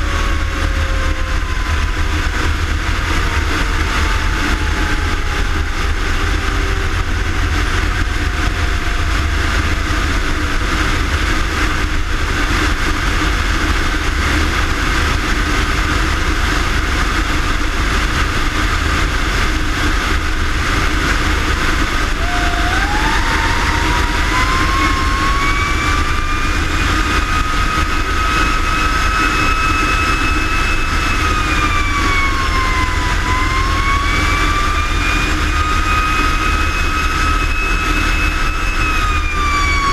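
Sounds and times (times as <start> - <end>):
faint siren tone sliding down: 0.0 - 9.8, 21.8 - 39.9
fire engine rumbling: 0.0 - 39.9
siren winding up: 22.0 - 39.9.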